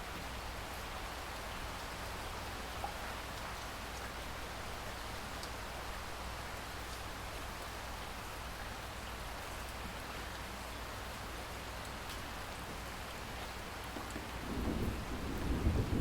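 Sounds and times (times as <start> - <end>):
rain hiss: 0.0 - 16.0
low thunder rumble: 14.3 - 16.0.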